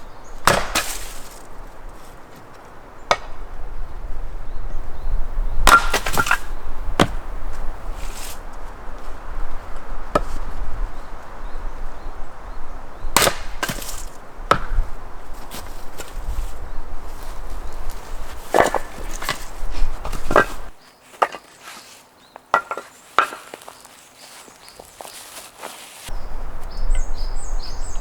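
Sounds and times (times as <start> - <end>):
chopping strikes on wood: 0.4 - 1.3, 3.1 - 3.4, 5.6 - 7.2, 13.2 - 14.9.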